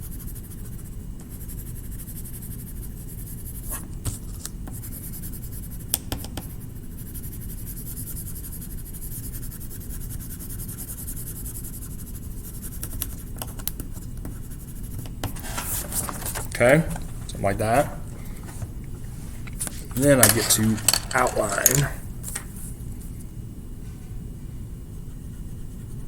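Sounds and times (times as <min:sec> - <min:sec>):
colouring tool scratching on paper: 0:06.6 - 0:16.4.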